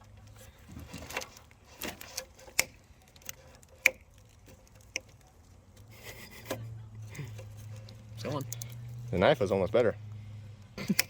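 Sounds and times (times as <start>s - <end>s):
cutters snipping wires: 1.0s - 5.2s, 10.7s - 11.0s.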